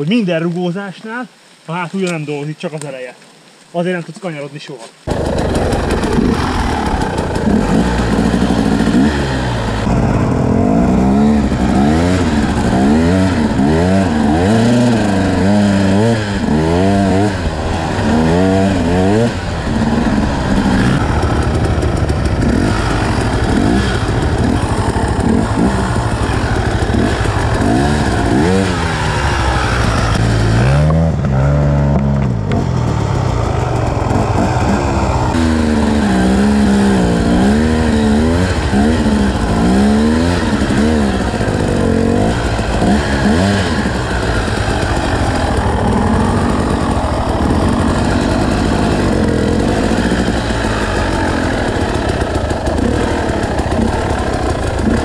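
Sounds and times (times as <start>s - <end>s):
motorcycle engine revving: 5.1s - 55.0s.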